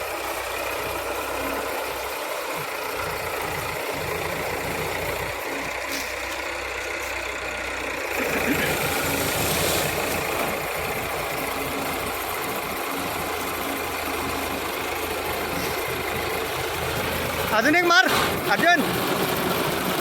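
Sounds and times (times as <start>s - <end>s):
harvester engine running: 0.0s - 20.0s.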